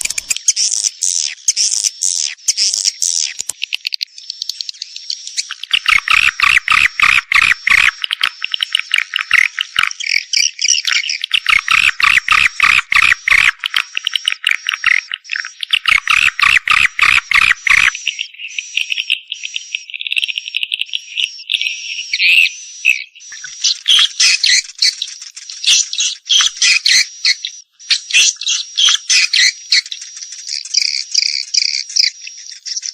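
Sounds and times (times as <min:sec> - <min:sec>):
swiftlets twittering and clicking: 0:00.0 - 0:10.3, 0:23.2 - 0:32.9.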